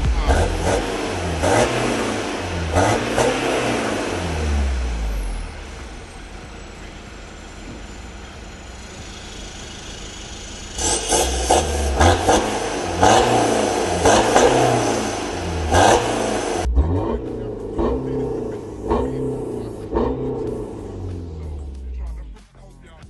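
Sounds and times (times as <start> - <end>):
rap music with hard beat: 0.0 - 5.1, 10.8 - 23.0
diesel engine revving: 0.0 - 22.4.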